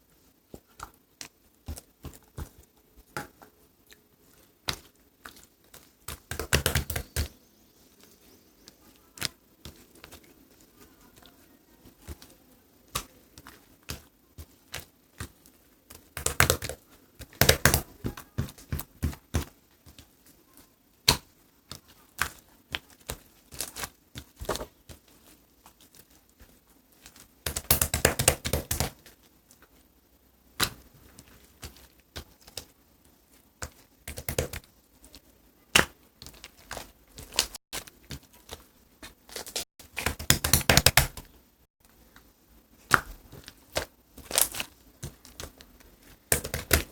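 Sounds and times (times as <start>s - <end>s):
sharp taps and clicks: 40.0s - 41.3s.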